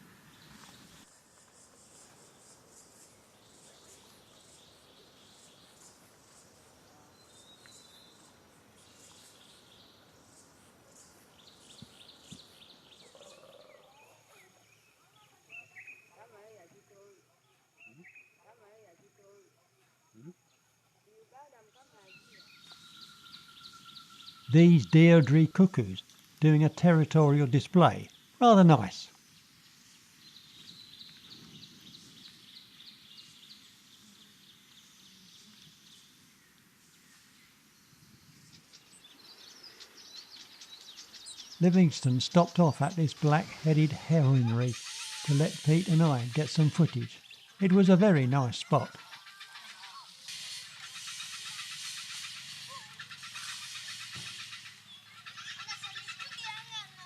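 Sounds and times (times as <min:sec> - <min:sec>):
faint birds calling: 0:00.0 - 0:16.8, 0:38.3 - 0:57.0.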